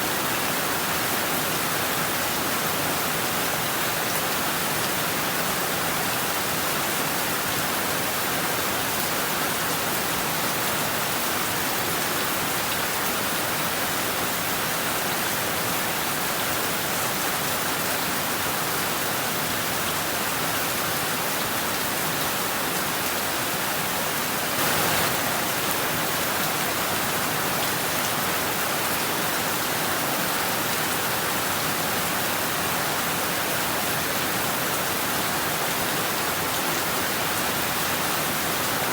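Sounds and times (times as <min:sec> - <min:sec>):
heavy rain on rooftops and trees: 0:00.0 - 0:38.9.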